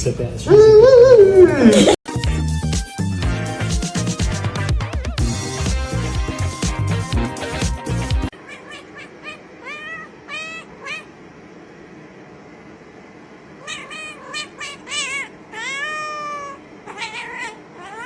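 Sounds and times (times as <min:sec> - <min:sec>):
cat meowing: 0:08.3 - 0:11.1, 0:13.6 - 0:18.0.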